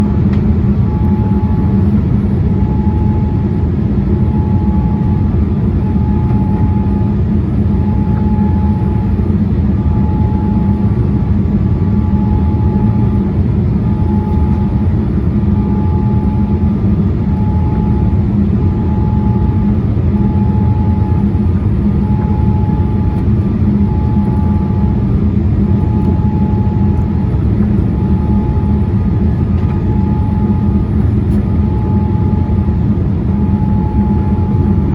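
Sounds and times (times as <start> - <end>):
jet cabin engine rumble: 0.0 - 34.9
faint high tone beeps: 0.8 - 1.8, 4.2 - 5.2, 5.8 - 9.2, 9.8 - 11.2, 11.8 - 13.2, 13.8 - 14.9, 15.5 - 23.2, 23.8 - 25.0, 25.7 - 27.2, 27.9 - 29.1, 29.7 - 30.9, 31.5 - 34.9.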